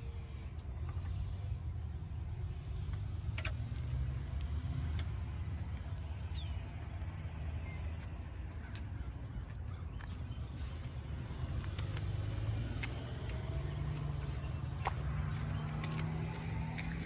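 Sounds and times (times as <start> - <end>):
diesel engine idling: 4.0 - 17.0.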